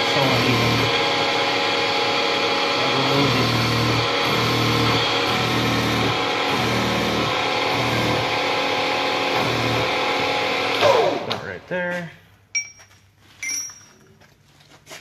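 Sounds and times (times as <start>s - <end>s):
metal lathe whining: 0.0s - 11.4s.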